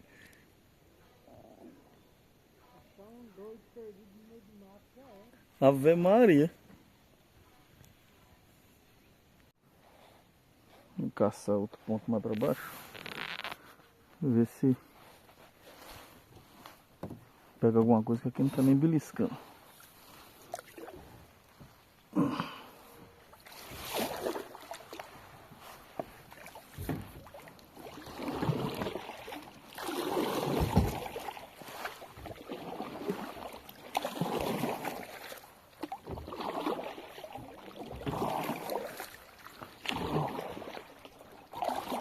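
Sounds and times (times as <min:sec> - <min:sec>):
kayak paddle splashing in water: 0:19.5 - 0:42.0.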